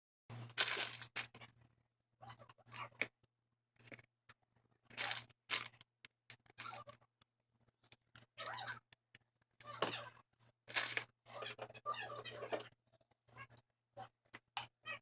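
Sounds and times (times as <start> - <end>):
scraping and clicking handling noises: 0.3 - 1.6, 4.9 - 7.3, 10.7 - 12.8.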